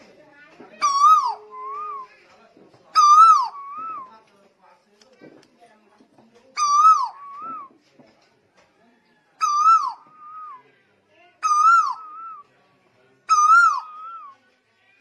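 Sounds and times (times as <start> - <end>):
bird whistled calls: 0.8 - 2.1, 3.0 - 4.1, 6.6 - 7.7, 9.4 - 10.6, 11.4 - 12.5, 13.3 - 14.4.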